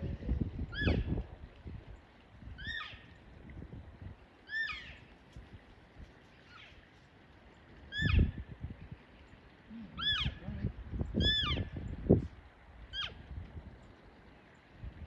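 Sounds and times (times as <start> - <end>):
animal short high calls: 9.9 - 10.4.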